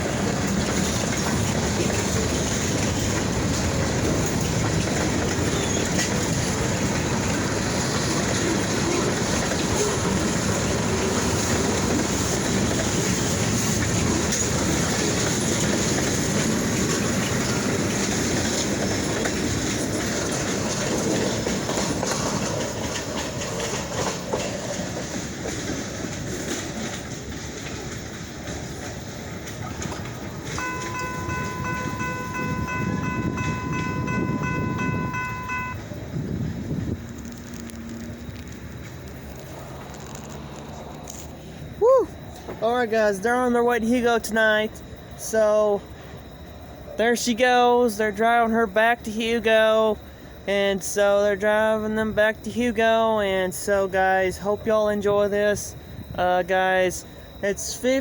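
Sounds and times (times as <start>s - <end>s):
freight train rolling past: 0.0s - 58.0s
wheels clicking over rail joints: 0.0s - 58.0s.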